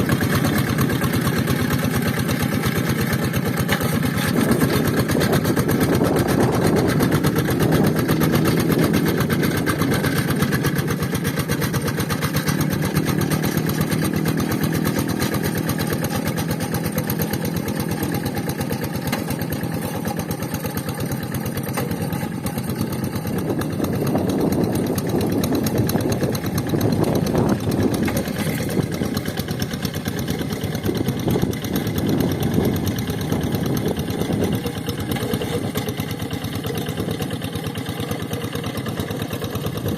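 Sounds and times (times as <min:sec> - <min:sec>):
hand tractor diesel engine chugging: 0:00.0 - 0:39.9.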